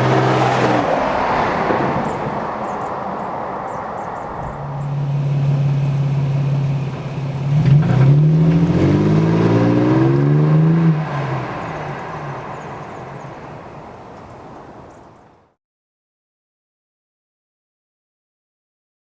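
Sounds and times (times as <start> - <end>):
truck engine and exhaust revving: 0.0 - 15.1.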